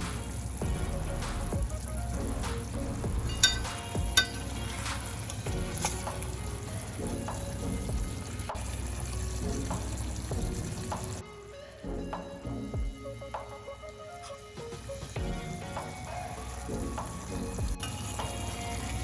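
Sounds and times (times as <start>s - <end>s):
curry sizzling in a pan: 0.0s - 11.2s, 14.3s - 19.0s
metal clinks: 3.2s - 4.6s.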